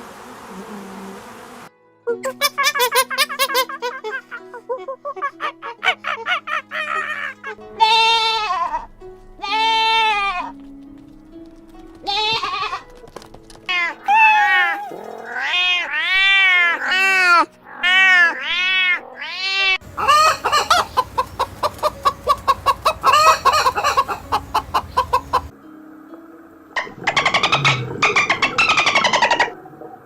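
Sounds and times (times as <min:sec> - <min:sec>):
high-pitched animal cries: 0:13.7 - 0:21.5, 0:22.3 - 0:25.5
rapid pulsed animal calls: 0:19.8 - 0:25.5.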